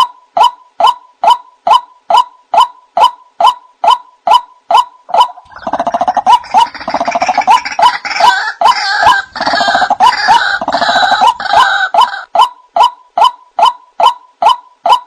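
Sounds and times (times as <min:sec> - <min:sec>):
bird sharp repeated notes: 0:00.0 - 0:15.0
raucous croaking chorus: 0:05.4 - 0:12.3.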